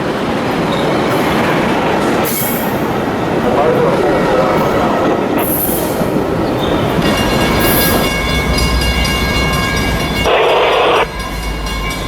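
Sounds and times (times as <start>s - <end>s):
train rumbling on tracks: 0.0s - 12.0s
high-pitched squealing: 10.2s - 11.1s.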